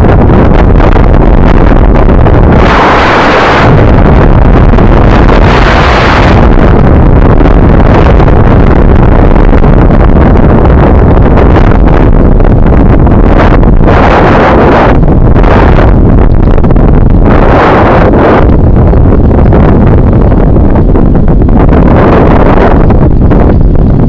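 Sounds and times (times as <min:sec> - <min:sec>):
wind buffeting on microphone: 0:00.0 - 0:24.0.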